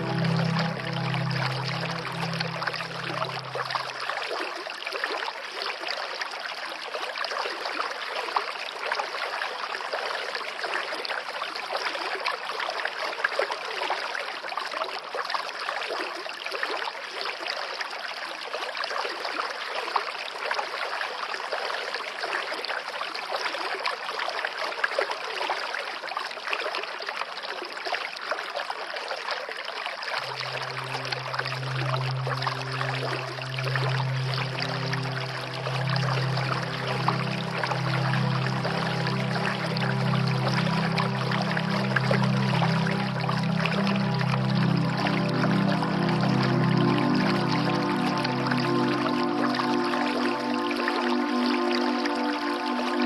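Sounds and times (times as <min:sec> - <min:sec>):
low sustained music tones: 0:00.0 - 0:04.8, 0:30.2 - 0:53.0
stream flowing and trickling: 0:00.0 - 0:53.0.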